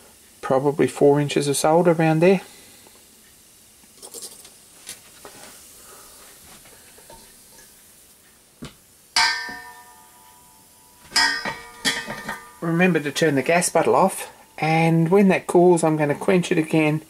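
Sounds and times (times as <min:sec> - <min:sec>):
ringing metallic clangs: 0:09.2 - 0:13.0.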